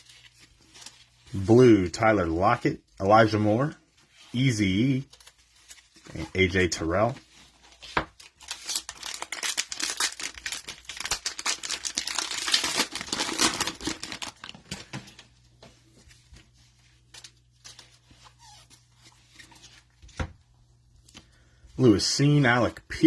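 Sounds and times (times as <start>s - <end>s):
cellophane wrapper crinkling: 4.9s - 15.3s.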